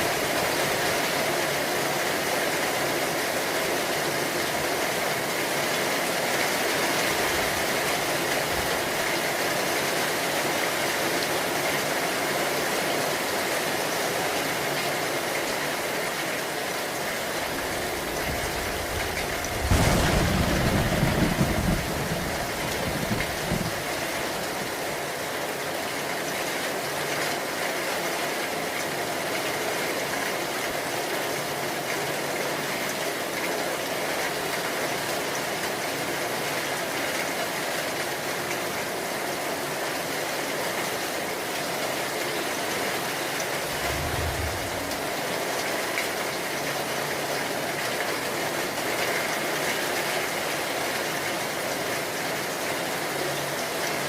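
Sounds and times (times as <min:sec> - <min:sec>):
heavy rain hissing: 0:15.6 - 0:25.5, 0:43.0 - 0:46.0
thunder rumble: 0:17.5 - 0:24.3, 0:43.6 - 0:45.7.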